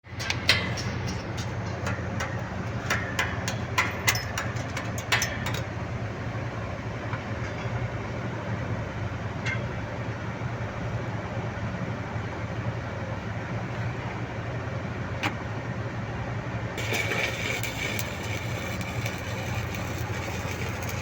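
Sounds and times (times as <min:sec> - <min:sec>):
welding crackles and pops: 0:16.8 - 0:21.0
welding machine hum: 0:16.8 - 0:21.0.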